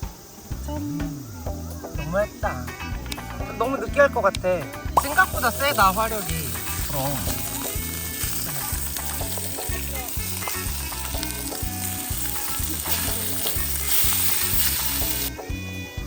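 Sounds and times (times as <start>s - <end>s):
background music beat: 0.1s - 16.0s
food sizzling in a frying pan: 4.6s - 16.0s.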